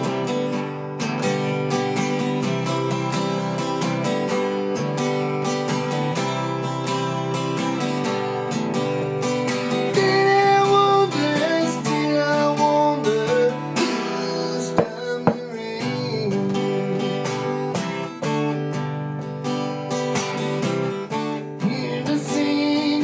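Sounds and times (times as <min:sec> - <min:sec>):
acoustic guitar strumming: 0:00.0 - 0:23.0
guitar melody with bending notes: 0:00.0 - 0:23.0
sharp knocks: 0:14.8 - 0:15.4.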